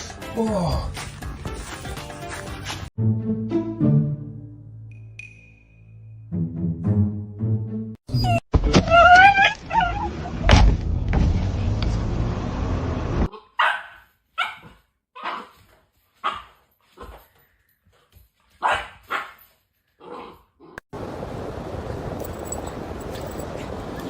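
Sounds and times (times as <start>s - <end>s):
dog whining: 8.1s - 10.4s
dog barking: 13.3s - 15.6s, 16.2s - 17.1s, 18.6s - 19.4s.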